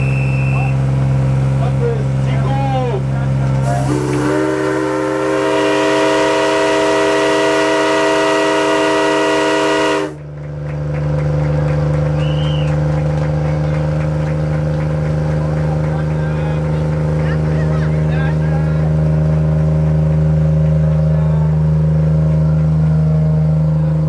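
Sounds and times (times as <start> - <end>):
steam locomotive whistle: 0.0 - 0.9, 3.6 - 10.3, 12.0 - 14.0
low engine hum: 0.0 - 24.0.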